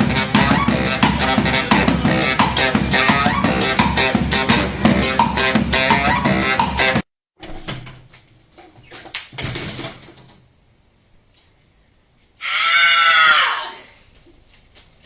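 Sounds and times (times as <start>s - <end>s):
music with guitar and bass: 0.0s - 7.0s.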